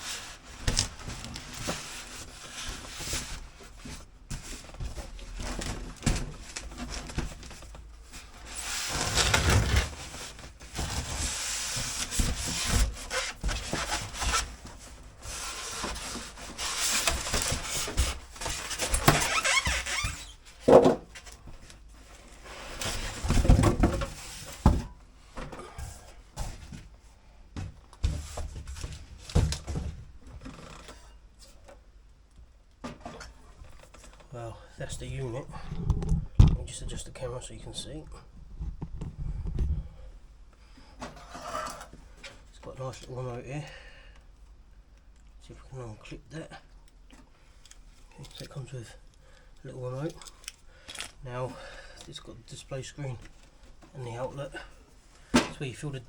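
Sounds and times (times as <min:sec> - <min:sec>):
cardboard rubbing and squeaking: 0:08.3 - 0:14.6, 0:15.2 - 0:20.5.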